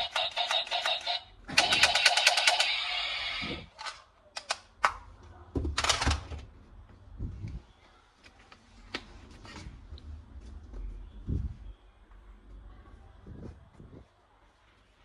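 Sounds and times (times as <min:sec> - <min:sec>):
toy guns clicking and knocking: 0:00.0 - 0:05.0, 0:05.8 - 0:06.2.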